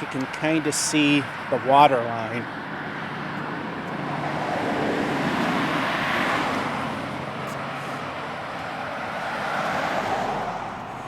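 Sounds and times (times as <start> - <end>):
car driving past: 2.9 - 11.0.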